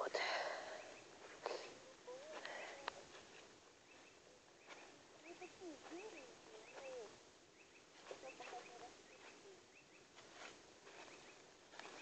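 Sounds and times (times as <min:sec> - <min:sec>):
small bird chirping: 0:02.6 - 0:12.0
lower wavering bird calls: 0:03.8 - 0:10.2.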